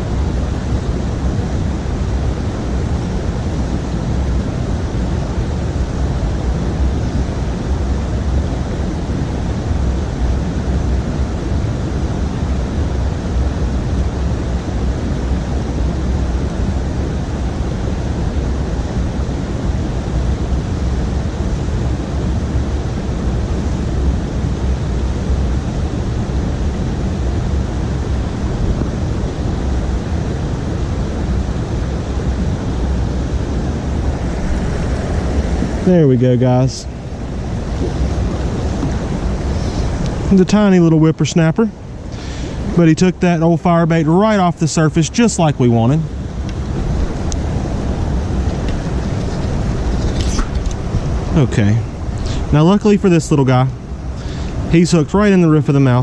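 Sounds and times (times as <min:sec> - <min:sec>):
creek water rushing: 0:00.0 - 0:56.0.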